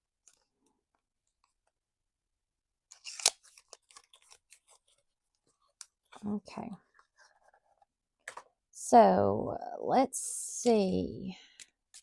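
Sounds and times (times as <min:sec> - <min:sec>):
playing cards being shuffled: 0:02.9 - 0:05.0.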